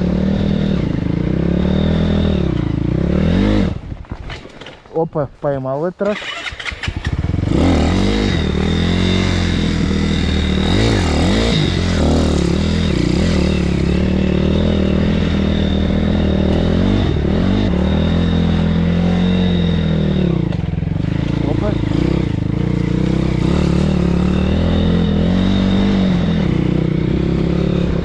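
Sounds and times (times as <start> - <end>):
motorbike engine running: 6.1 - 28.0.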